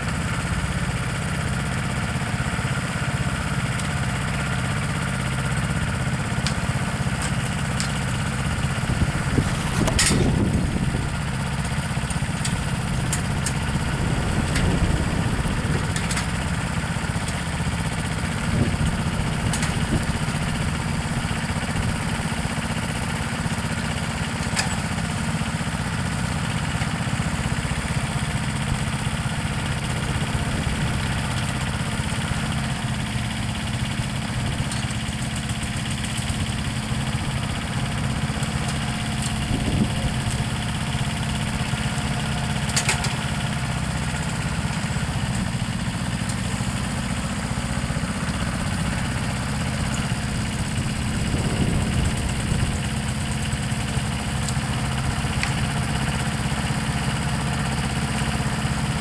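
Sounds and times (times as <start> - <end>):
engine idling: 0.0 - 59.0.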